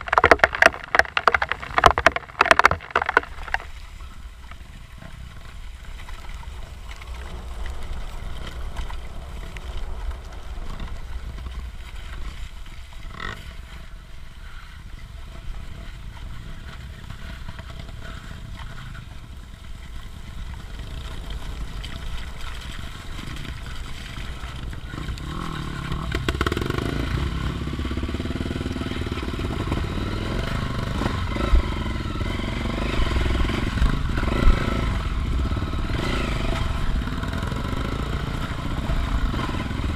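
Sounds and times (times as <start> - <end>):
off-road motorcycle engine running: 0.0 - 39.9.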